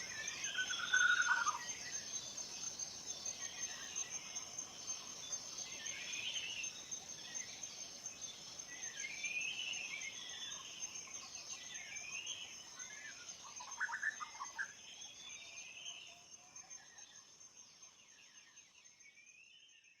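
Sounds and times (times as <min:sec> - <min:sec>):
forest birds warbling: 0:00.0 - 0:01.6.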